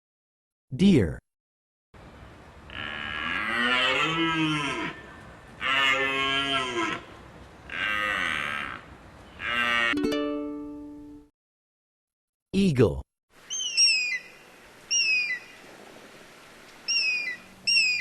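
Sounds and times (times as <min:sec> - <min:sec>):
deer bellowing: 0:02.7 - 0:07.1, 0:07.7 - 0:10.0.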